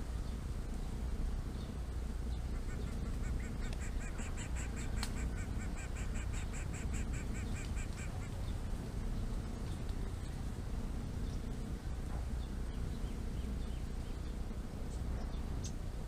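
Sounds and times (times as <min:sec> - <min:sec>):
steady low rumble: 0:00.0 - 0:16.0
nestlings begging nasal calls: 0:02.3 - 0:08.7.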